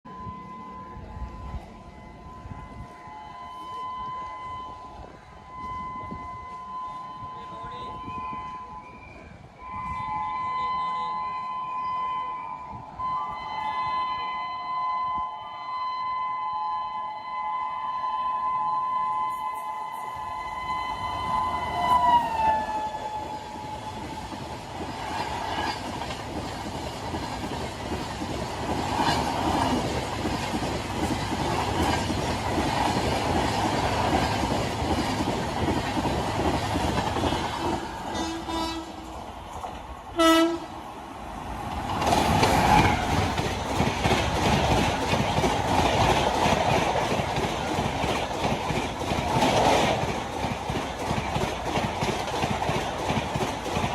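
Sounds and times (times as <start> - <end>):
train horn blast: 0.1 - 24.2, 38.1 - 39.1, 40.2 - 40.8
train wheel clatter and rumble: 20.1 - 40.6, 41.3 - 53.9.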